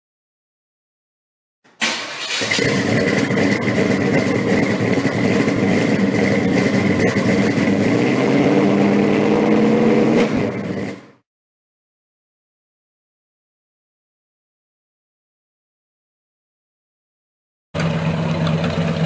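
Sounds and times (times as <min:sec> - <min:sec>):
car engine starting and running: 0:01.7 - 0:11.2, 0:17.8 - 0:19.0.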